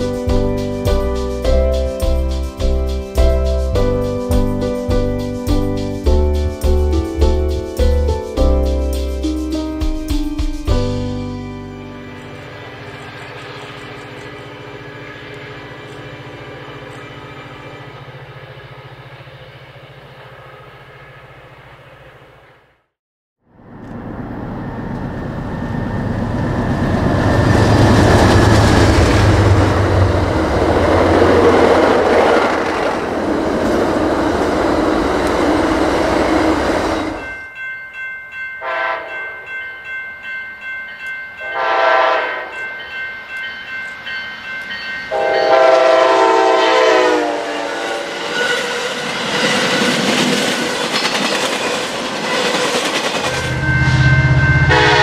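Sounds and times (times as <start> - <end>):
train rumbling past: 0.0 - 22.8, 23.5 - 55.0
train air horn blasts: 38.6 - 39.1, 41.4 - 42.5, 45.1 - 48.8, 53.4 - 55.0.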